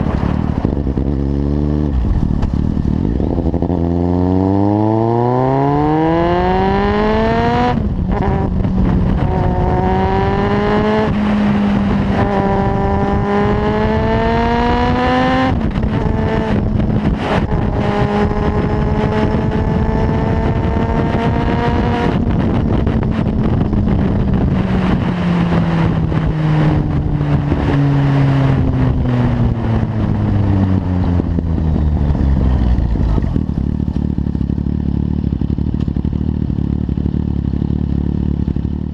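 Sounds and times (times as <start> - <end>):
motorcycle engine accelerating: 0.0 - 38.9
motorcycle engine idling: 31.2 - 38.9.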